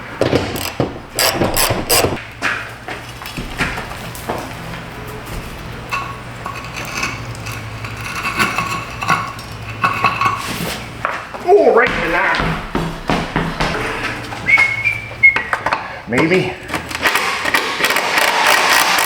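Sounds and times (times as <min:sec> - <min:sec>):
socket wrench clicking: 0:00.6 - 0:02.2.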